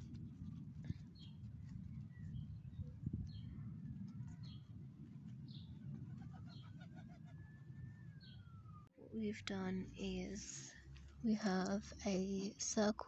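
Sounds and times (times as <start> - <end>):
low background rumble: 0.0 - 13.0
garden birds chirping: 9.2 - 13.0.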